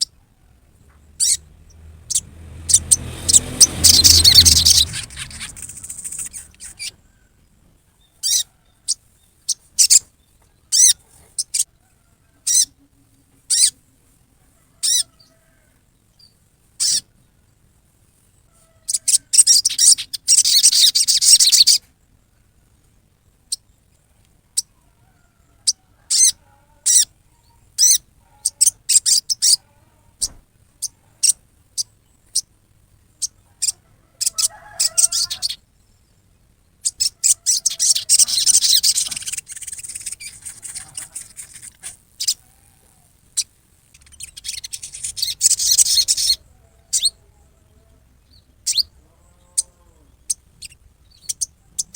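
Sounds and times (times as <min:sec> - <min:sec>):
bird harsh call and chattering: 0:01.0 - 0:07.1, 0:08.0 - 0:11.7, 0:12.4 - 0:13.8, 0:14.8 - 0:15.4, 0:16.2 - 0:17.1, 0:18.8 - 0:21.9, 0:25.6 - 0:32.5, 0:33.1 - 0:35.7, 0:36.7 - 0:47.2, 0:48.3 - 0:51.9.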